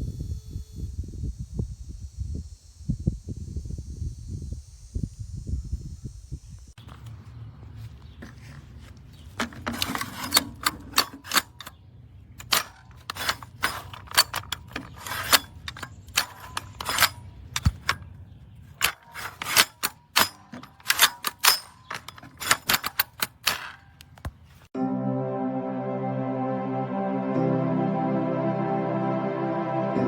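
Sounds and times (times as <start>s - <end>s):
sharp clicks and knocks: 9.2s - 11.8s, 12.4s - 24.7s.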